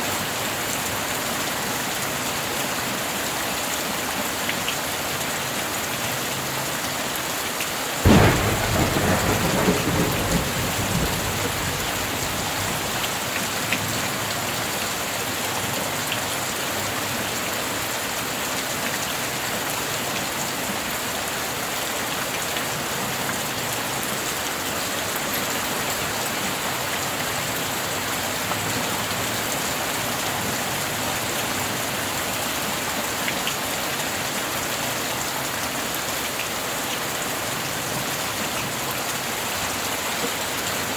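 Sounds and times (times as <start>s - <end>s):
heavy rain: 0.0s - 40.9s
thunder clap and rumble: 8.1s - 14.2s.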